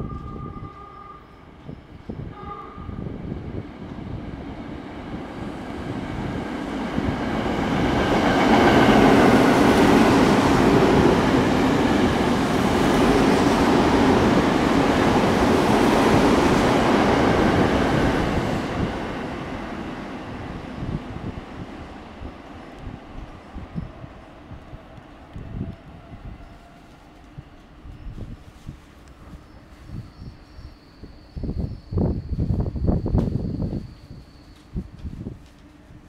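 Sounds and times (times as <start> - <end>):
electric train wheels on rail: 0.0 - 36.0.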